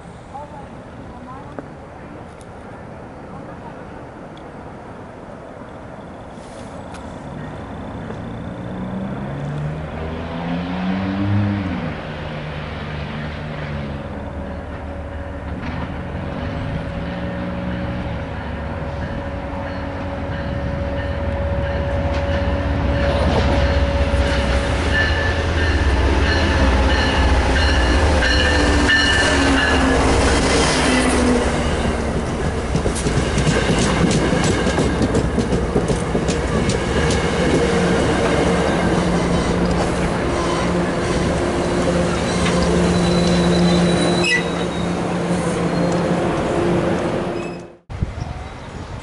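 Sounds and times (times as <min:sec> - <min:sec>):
train wheels clicking over rails: 0:25.8 - 0:41.4.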